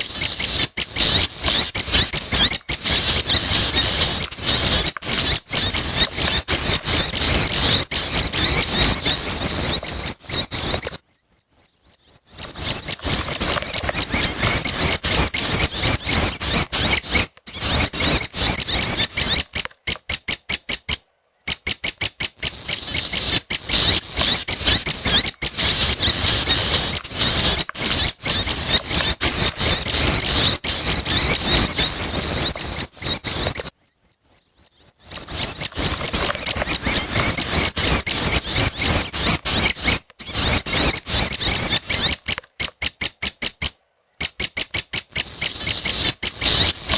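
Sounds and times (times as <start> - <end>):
chicks begging calls: 0.0 - 11.0, 12.0 - 33.7, 34.7 - 46.9.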